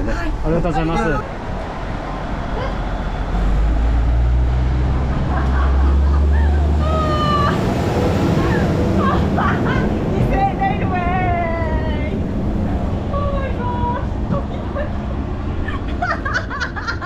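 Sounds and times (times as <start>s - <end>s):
railcar diesel engine drone: 0.0s - 17.0s
voices: 6.3s - 15.0s.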